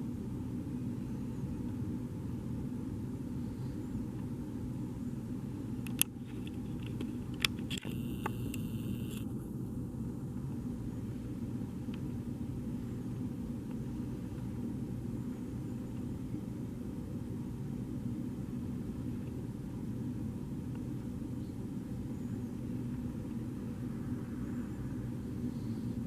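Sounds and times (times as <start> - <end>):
outdoor background rumble: 0.0 - 26.0
sharp clicks: 6.8 - 9.3.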